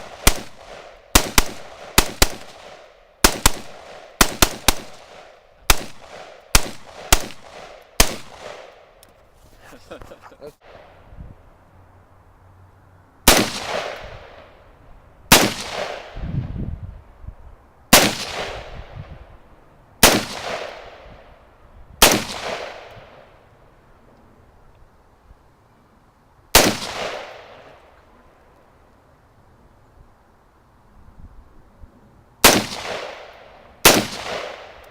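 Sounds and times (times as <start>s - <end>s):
rifle shots with echo: 0.0s - 8.8s, 13.3s - 14.5s, 15.3s - 16.2s, 17.9s - 18.9s, 20.0s - 21.1s, 22.0s - 23.2s, 26.5s - 27.8s, 32.4s - 34.8s.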